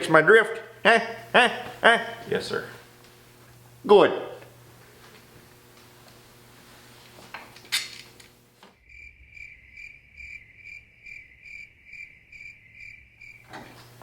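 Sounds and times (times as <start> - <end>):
cricket chirping: 8.8 - 13.8.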